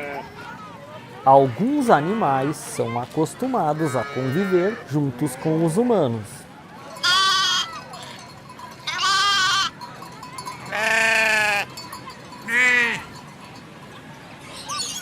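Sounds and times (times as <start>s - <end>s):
livestock bleating: 0.0s - 0.2s, 7.0s - 7.8s, 8.9s - 9.7s, 10.7s - 11.7s, 12.5s - 13.1s.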